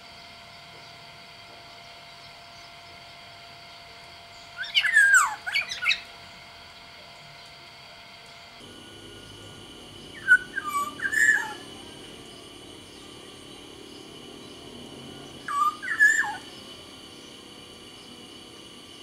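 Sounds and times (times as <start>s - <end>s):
bird singing whistled notes: 4.3s - 6.1s, 8.7s - 18.2s.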